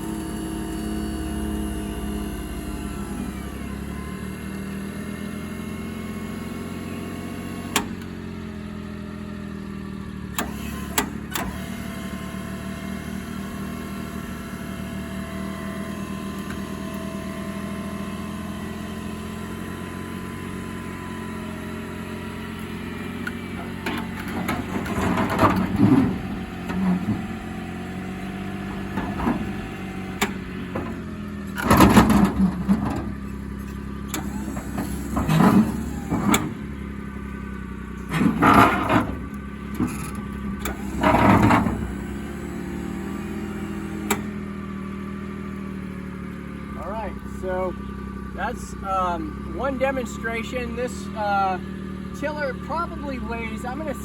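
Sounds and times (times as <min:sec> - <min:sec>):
truck engine idling: 0:00.0 - 0:54.0
metal clanking and rattling: 0:23.2 - 0:36.8, 0:37.9 - 0:42.2.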